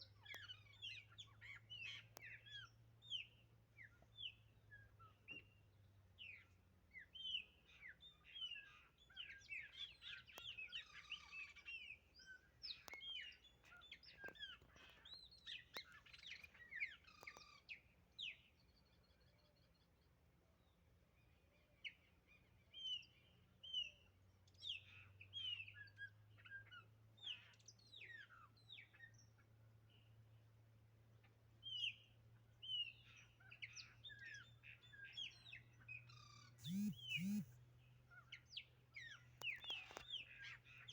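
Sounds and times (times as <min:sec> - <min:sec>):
blackbirds singing: 0:00.0 - 0:19.7, 0:21.8 - 0:30.2, 0:31.6 - 0:40.9
faint low hum: 0:36.6 - 0:37.6.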